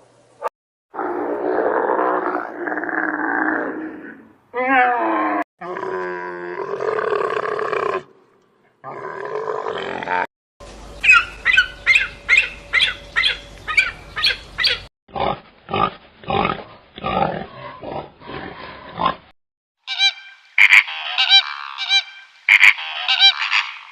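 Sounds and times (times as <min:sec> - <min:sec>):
animal calls: 0:11.0 - 0:14.9, 0:19.9 - 0:23.9.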